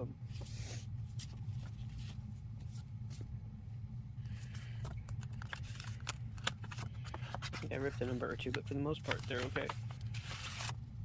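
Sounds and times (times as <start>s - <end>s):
steady low hum: 0.0s - 11.0s
paper rustling and crinkling: 4.3s - 10.8s.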